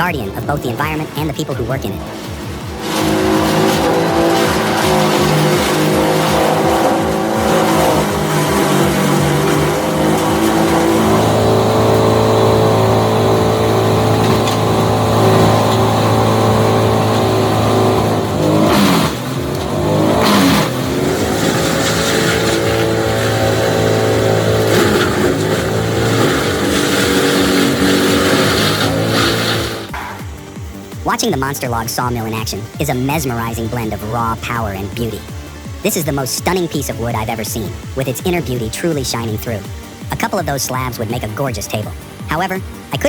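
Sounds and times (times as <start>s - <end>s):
large engine running under load: 0.0s - 43.0s.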